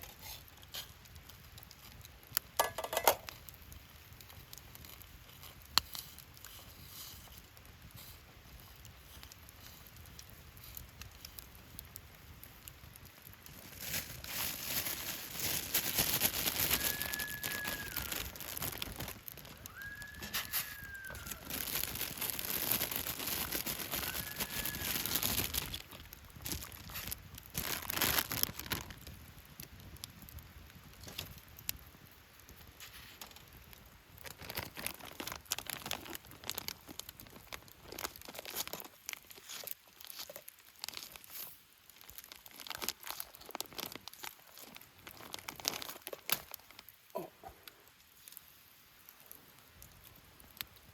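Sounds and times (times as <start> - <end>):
plastic packaging crinkling and tearing: 12.9 - 29.2, 30.9 - 31.5, 32.8 - 47.2.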